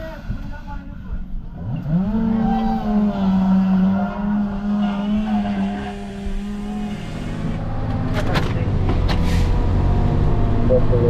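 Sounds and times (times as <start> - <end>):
vehicle engine running: 10.4 - 11.0.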